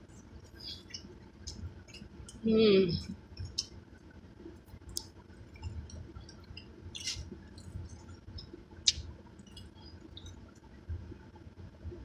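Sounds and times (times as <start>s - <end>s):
chewing food: 0.4s - 3.8s, 4.6s - 10.7s.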